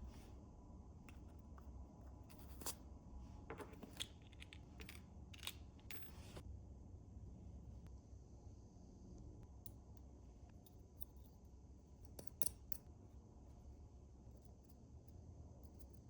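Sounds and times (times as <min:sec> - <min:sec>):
small parts clicking and scraping: 0:03.5 - 0:06.4.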